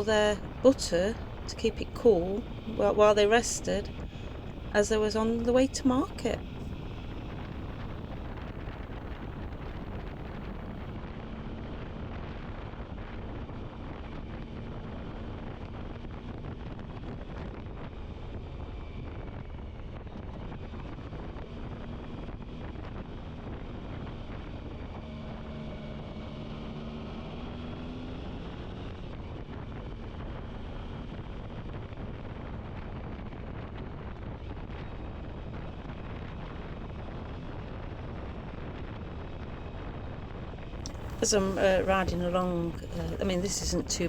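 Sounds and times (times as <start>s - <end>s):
wind rushing over microphone: 0.0s - 25.1s
motorcycle engine drone: 21.7s - 33.6s.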